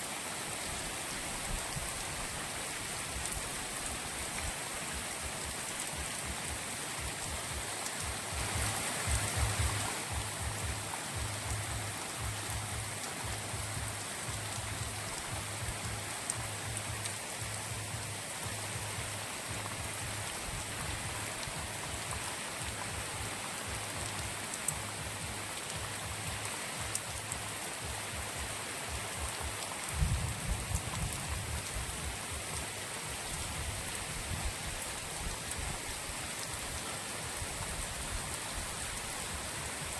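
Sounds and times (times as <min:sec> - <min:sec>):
light drizzle hissing: 0:00.0 - 0:39.9.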